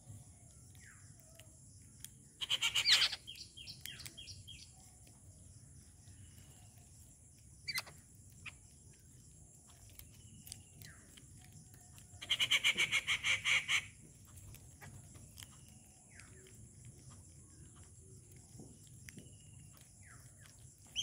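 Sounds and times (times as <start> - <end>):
birds chirping and clicking: 0.0 - 21.0
bird harsh chattering call: 2.4 - 4.6, 12.2 - 14.0.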